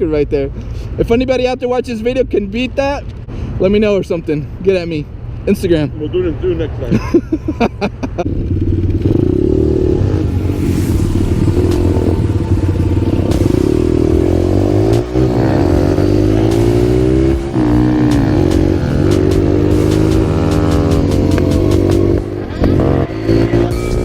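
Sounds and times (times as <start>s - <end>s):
small motorbike engine revving: 8.2s - 10.6s, 11.2s - 24.0s.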